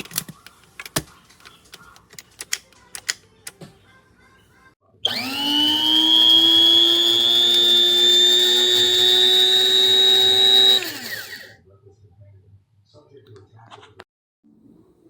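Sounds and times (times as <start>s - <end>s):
coffee grinder motor whining: 5.0s - 11.5s.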